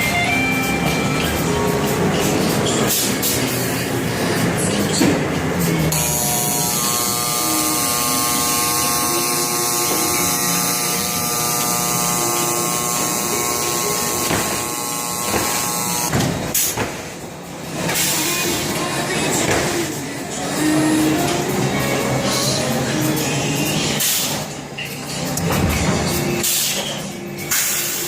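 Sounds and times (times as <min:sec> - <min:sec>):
electric motor buzzing whine: 0:05.9 - 0:16.1.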